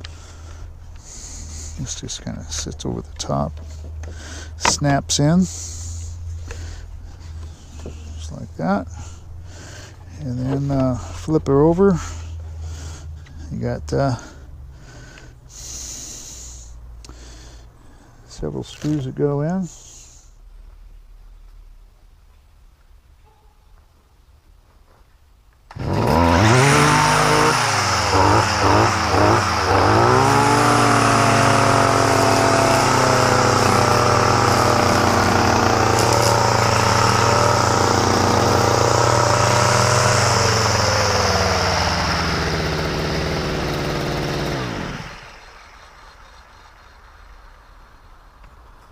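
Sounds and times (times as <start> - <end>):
small two-stroke engine revving: 25.7 - 46.4.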